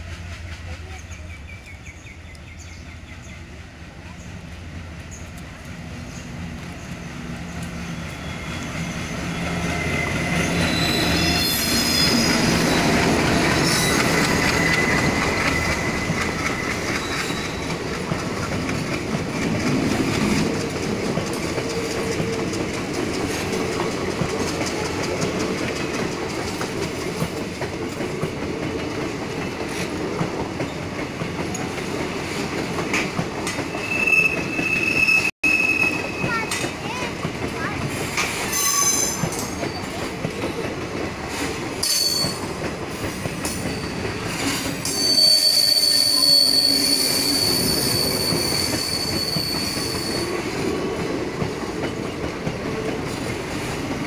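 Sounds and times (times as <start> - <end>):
diesel locomotive engine: 0.0 - 54.0
wheels clacking over rail joints: 5.0 - 35.0, 35.9 - 54.0
wheels squealing: 6.0 - 26.7, 33.4 - 36.7, 38.3 - 40.7, 41.8 - 50.7.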